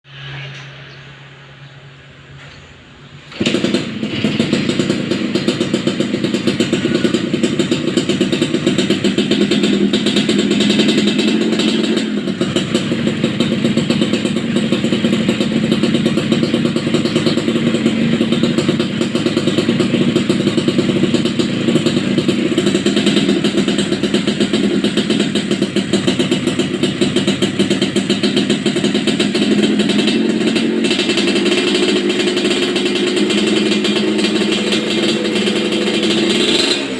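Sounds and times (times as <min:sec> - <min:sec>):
two-stroke motorcycle engine running: 0:03.3 - 0:36.9.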